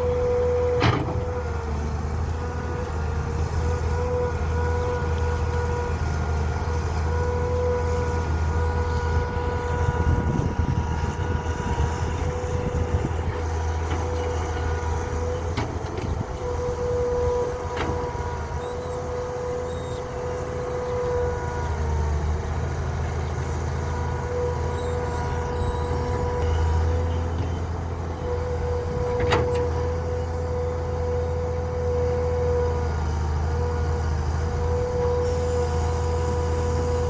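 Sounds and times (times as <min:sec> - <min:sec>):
steady whine: 0:00.0 - 0:21.3
truck engine droning: 0:00.0 - 0:37.0.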